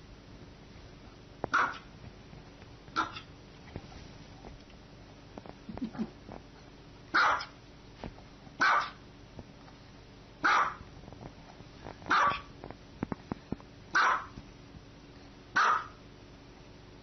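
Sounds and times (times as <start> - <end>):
dog barking: 1.5 - 1.9, 3.0 - 3.3, 7.1 - 7.6, 8.6 - 9.0, 10.4 - 10.8, 12.1 - 12.5, 13.9 - 14.4, 15.5 - 16.0.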